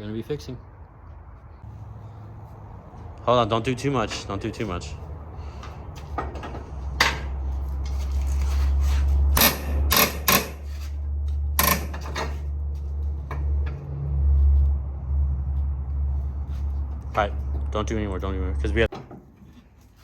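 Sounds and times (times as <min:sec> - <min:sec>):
steady low rumble: 0:12.4 - 0:18.9.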